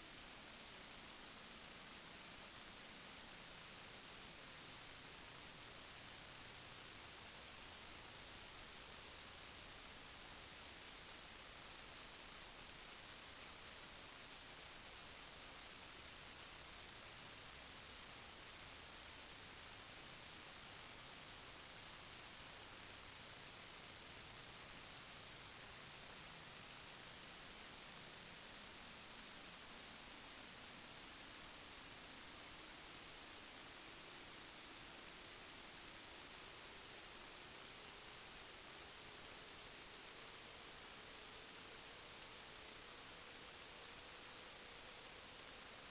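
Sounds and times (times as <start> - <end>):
high-pitched electronic whine: 0.0 - 45.9.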